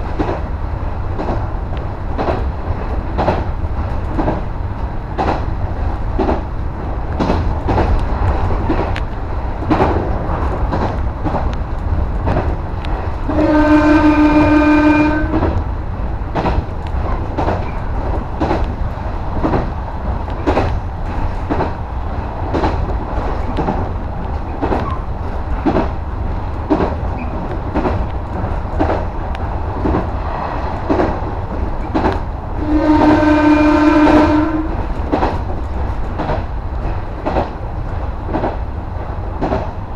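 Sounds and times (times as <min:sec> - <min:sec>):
electric train rumbling: 0:00.0 - 0:39.9
wheels clicking over rail joints: 0:01.1 - 0:13.6, 0:15.2 - 0:33.6, 0:34.2 - 0:39.9
train horn blast: 0:13.2 - 0:15.5, 0:32.6 - 0:34.8.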